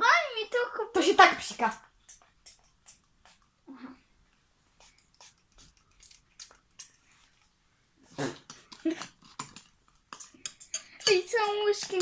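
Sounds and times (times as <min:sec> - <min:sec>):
spray bottle spritzing: 0:04.8 - 0:06.9.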